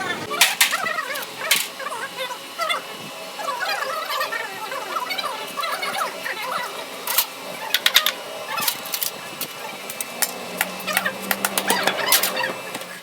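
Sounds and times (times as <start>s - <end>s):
hand tools knocking on metal: 7.1s - 12.9s.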